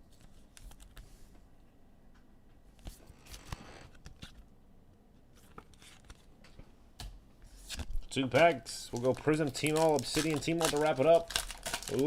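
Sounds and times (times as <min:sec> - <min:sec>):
trading cards rustling and clicking: 0:07.7 - 0:12.0.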